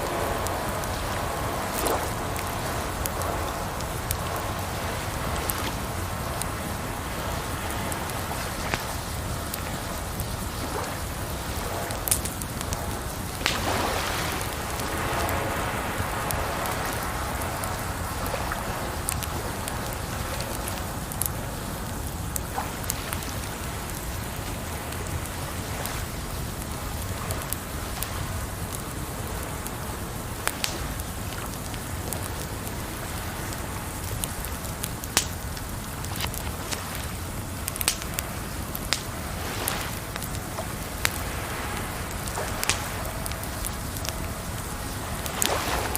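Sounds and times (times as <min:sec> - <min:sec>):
water noise: 0:00.0 - 0:45.9
wood fire crackling: 0:00.0 - 0:45.9.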